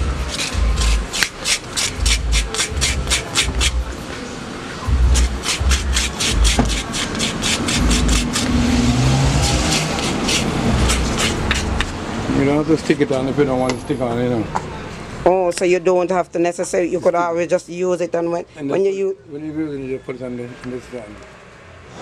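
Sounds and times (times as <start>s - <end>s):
calabash shell being scraped: 0.0s - 3.9s, 5.0s - 12.0s.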